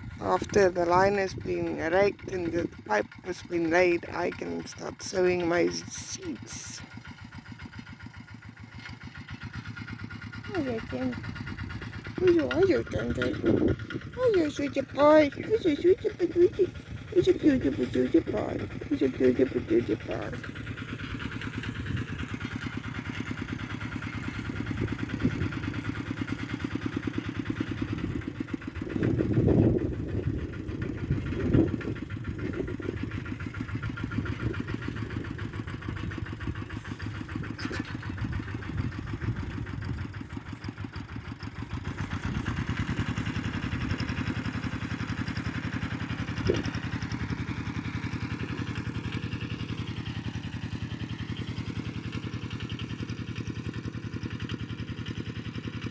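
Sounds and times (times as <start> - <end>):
ploughing machine engine running: 0.0 - 55.9
low rumbles: 10.1 - 50.0.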